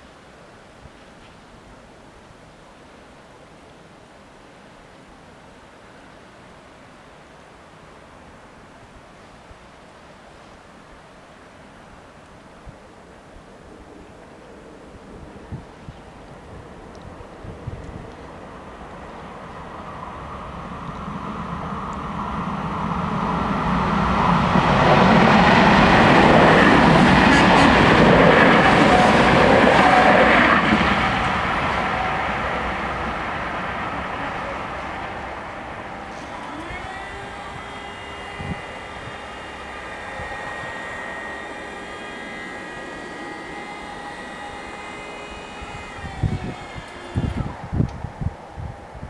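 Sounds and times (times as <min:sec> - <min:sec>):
train rumble passing: 0:13.7 - 0:49.0
barrier motors whining and humming: 0:21.0 - 0:49.0.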